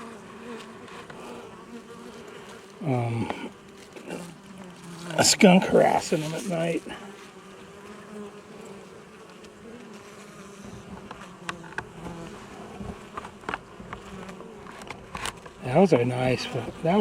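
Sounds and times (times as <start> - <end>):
honey bees buzzing: 0.0 - 17.0.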